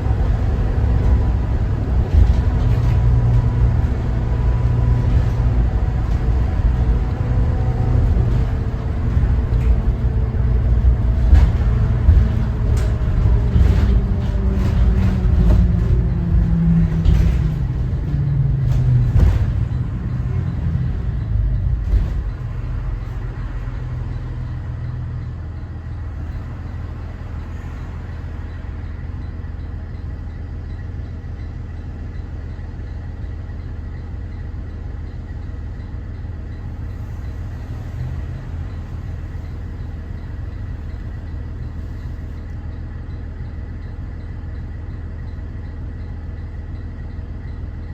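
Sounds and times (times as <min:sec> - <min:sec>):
knocks and rattles: 0:00.0 - 0:25.4
bus diesel engine: 0:00.0 - 0:47.9.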